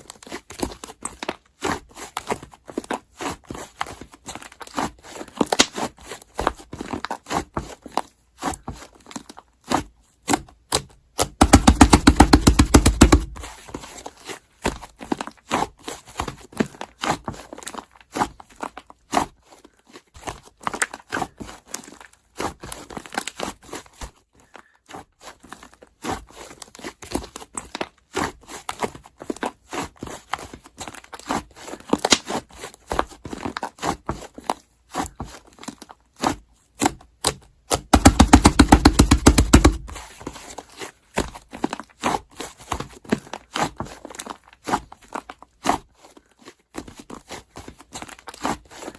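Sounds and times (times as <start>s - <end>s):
slime squished by hand: 36.8s - 40.2s.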